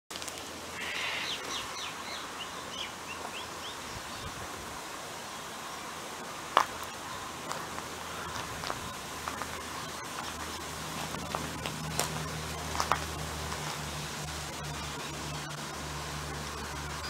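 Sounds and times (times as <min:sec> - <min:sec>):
steady hiss: 0:00.1 - 0:17.0
bird chirping: 0:00.8 - 0:04.4.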